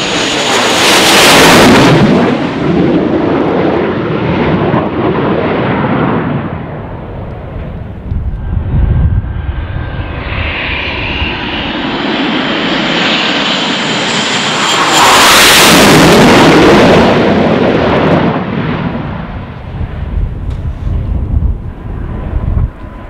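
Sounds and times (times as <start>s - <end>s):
jet passing with high whine: 0.0s - 23.0s.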